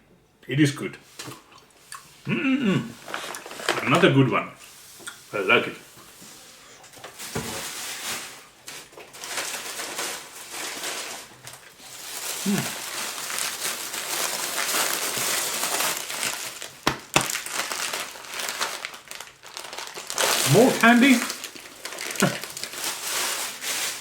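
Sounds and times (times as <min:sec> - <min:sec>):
candy wrappers crinkling: 0:02.9 - 0:04.2, 0:07.1 - 0:24.0
sharp knocks: 0:16.8 - 0:17.4.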